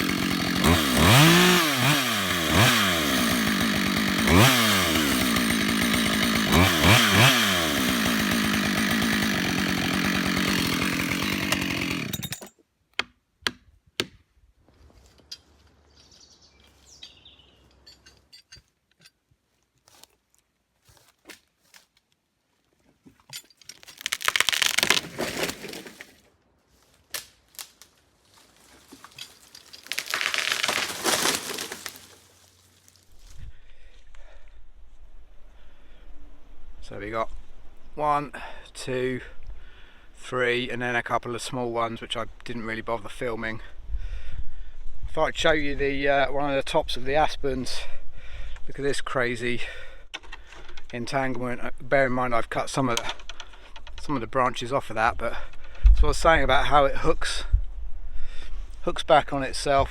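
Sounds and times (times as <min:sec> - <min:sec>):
chainsaw running at high revs: 0:00.0 - 0:12.4, 0:29.9 - 0:32.1
crunching and rustling: 0:19.4 - 0:33.4.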